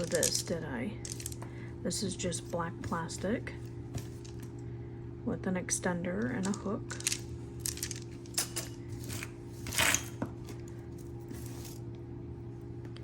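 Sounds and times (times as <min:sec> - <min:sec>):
jewelry clicking and clinking: 0:00.0 - 0:01.5, 0:06.2 - 0:10.2.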